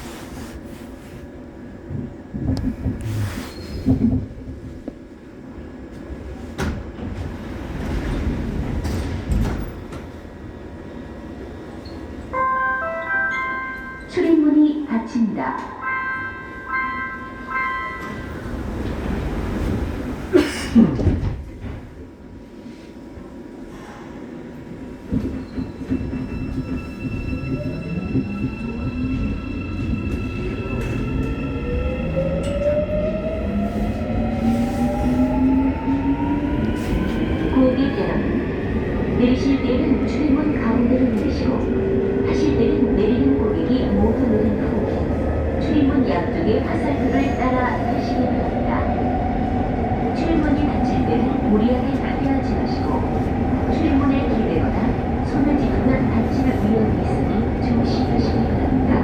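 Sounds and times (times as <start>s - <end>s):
subway car rumble: 0.0s - 59.0s
door-closing chime: 12.5s - 14.2s, 16.0s - 18.5s.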